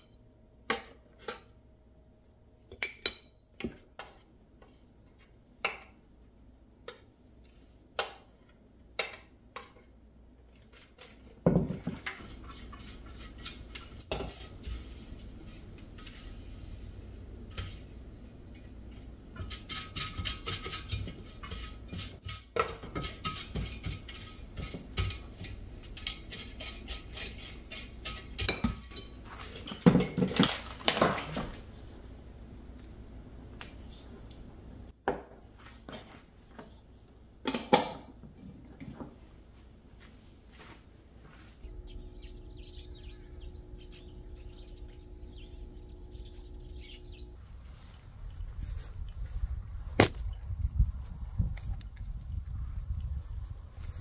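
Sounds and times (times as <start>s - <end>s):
dishes and utensils clinking: 19.4s - 31.5s.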